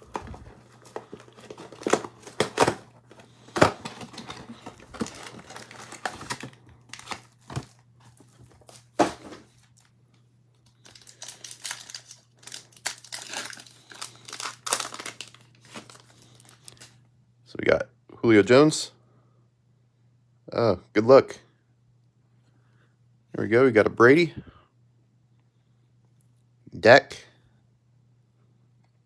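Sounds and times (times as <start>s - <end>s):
plastic wrapping crinkling: 0.0s - 9.9s, 10.6s - 17.0s
packaging snapping and ticking: 0.2s - 7.4s, 10.7s - 16.9s.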